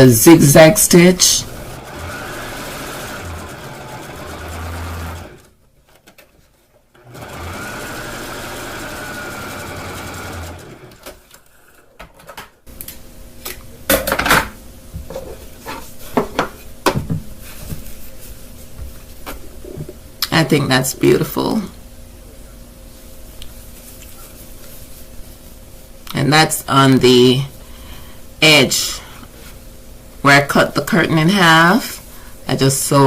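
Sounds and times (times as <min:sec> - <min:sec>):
sewing machine stitching: 0:01.4 - 0:05.5, 0:07.0 - 0:11.2.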